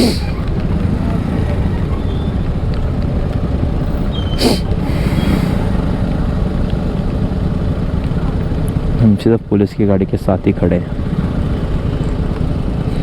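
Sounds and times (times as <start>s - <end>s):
sharp hiss: 0.0s - 0.4s, 4.4s - 5.7s
idling traffic engine rumble: 0.0s - 13.0s.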